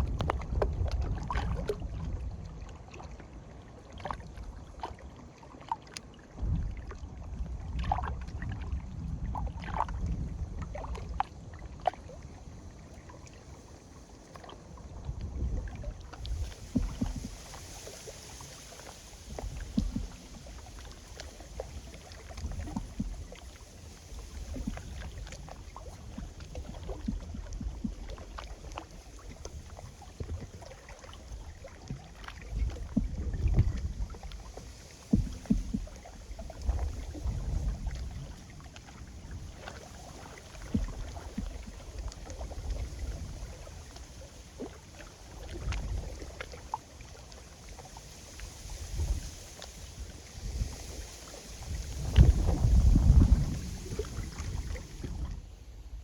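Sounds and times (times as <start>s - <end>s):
small waves lapping on shore: 0.0s - 56.0s
wind gusting on microphone: 14.9s - 28.1s, 31.4s - 38.4s, 48.4s - 56.0s.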